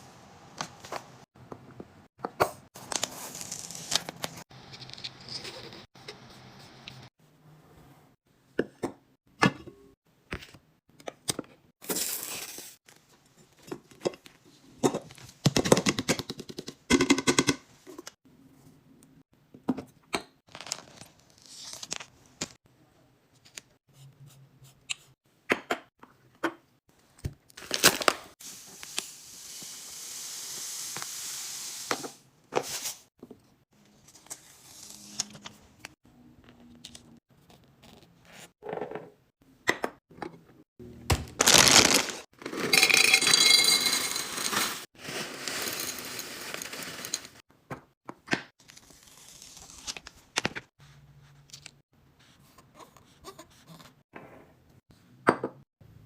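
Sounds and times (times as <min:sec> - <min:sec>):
plastic packaging crinkling: 0:41.3 - 0:42.2.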